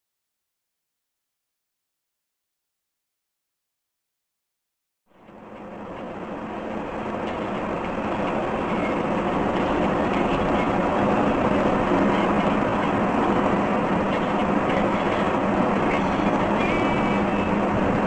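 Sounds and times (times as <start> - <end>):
vehicle rumbling: 5.1 - 18.0.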